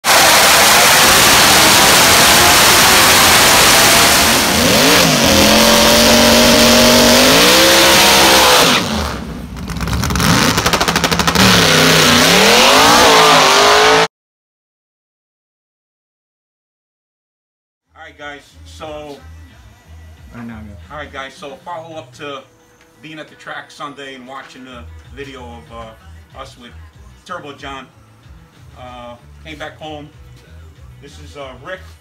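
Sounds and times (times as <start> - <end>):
race car engine revving: 0.0 - 14.1.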